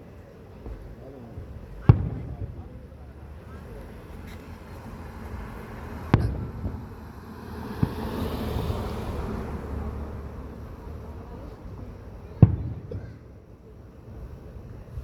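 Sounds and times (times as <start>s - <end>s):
fireworks bangs: 0.5s - 5.0s, 5.8s - 9.8s, 11.3s - 13.4s.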